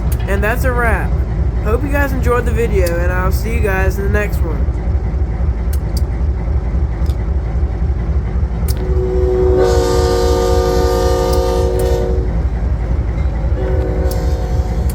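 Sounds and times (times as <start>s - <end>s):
diesel locomotive running: 0.0s - 14.9s
locomotive air horn chord: 8.8s - 12.4s, 13.6s - 14.9s.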